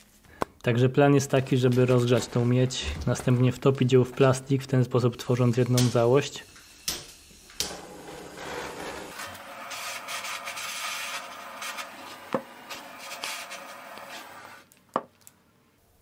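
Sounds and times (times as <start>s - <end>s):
gas torch hissing: 6.2s - 14.7s.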